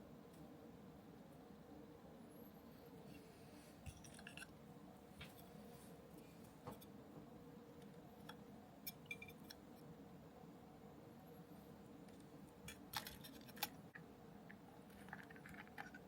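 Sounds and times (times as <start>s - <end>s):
low room hum: 0.0s - 16.0s
small parts and tools clicking: 3.8s - 4.6s, 7.8s - 9.7s, 12.1s - 16.0s.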